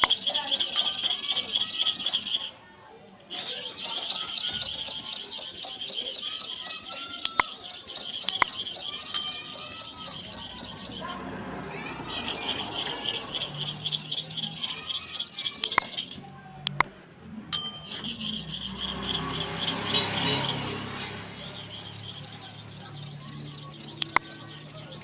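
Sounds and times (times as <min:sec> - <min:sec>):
blade rasping on sharpening surface: 0:00.0 - 0:02.6, 0:03.3 - 0:11.2, 0:12.0 - 0:16.3, 0:17.6 - 0:25.0
sharp clicks: 0:16.6 - 0:16.9.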